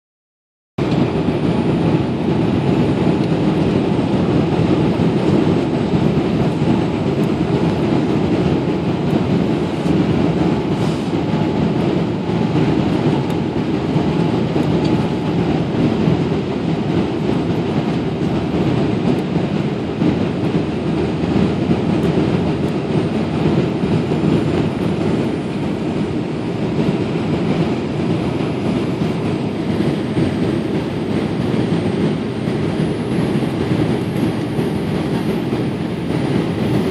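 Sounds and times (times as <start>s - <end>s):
airliner cabin rumble: 0.8s - 36.9s.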